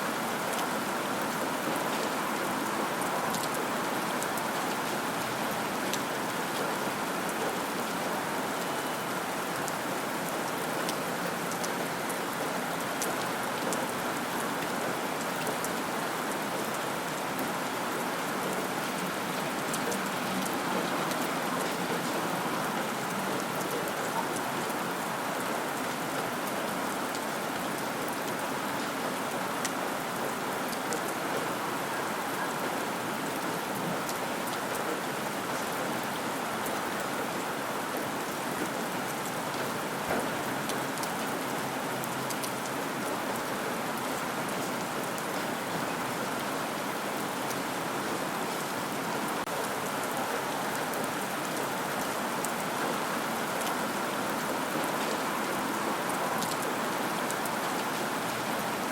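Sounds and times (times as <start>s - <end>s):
steady rain: 0.0s - 58.9s.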